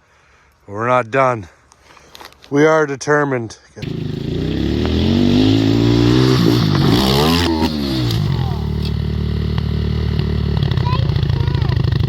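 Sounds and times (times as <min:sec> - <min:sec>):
dirt bike engine revving: 0:03.8 - 0:12.0.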